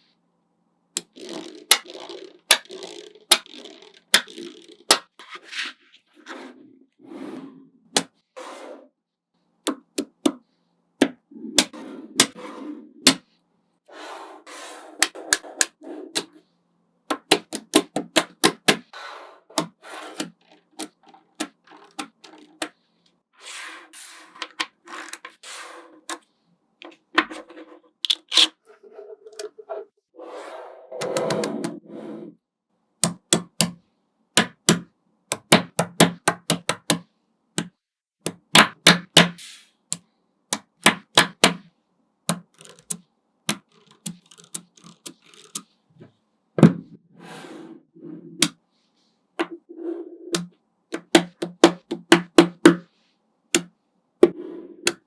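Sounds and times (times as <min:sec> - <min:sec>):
balls rolling and rustling: 0:01.0 - 0:08.9, 0:18.8 - 0:23.2, 0:26.8 - 0:32.4, 0:42.4 - 0:42.9, 0:43.5 - 0:48.5, 0:49.4 - 0:50.4, 0:54.2 - 0:55.0
magnet balls snapping together: 0:42.3 - 0:45.6.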